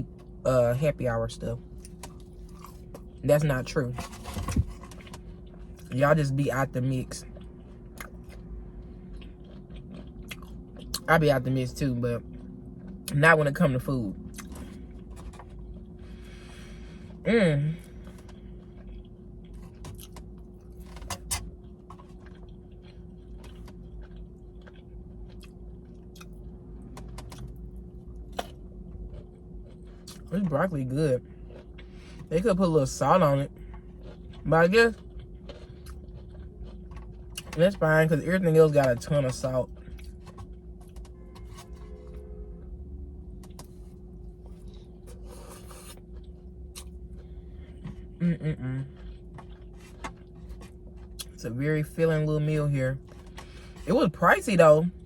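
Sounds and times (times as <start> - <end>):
steady low hum: 0.0 - 55.0
person chewing food: 1.6 - 3.2, 4.0 - 5.9, 7.2 - 11.1, 14.2 - 17.2, 17.8 - 30.5, 31.2 - 32.4, 33.5 - 37.6, 39.6 - 41.9, 43.3 - 51.4, 53.0 - 53.9.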